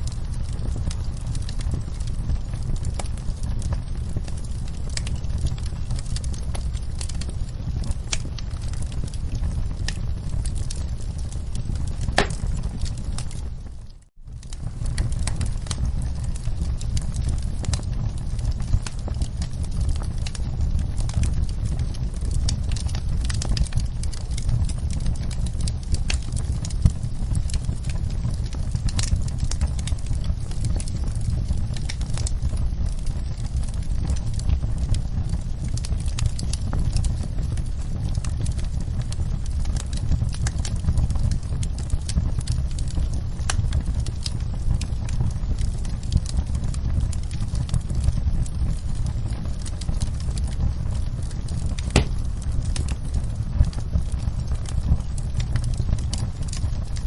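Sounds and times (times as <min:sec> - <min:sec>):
low rumble of flames: 0:00.0 - 0:57.0
wood fire crackling: 0:00.0 - 0:57.0
loud fire pop: 0:12.0 - 0:12.7, 0:51.8 - 0:52.5.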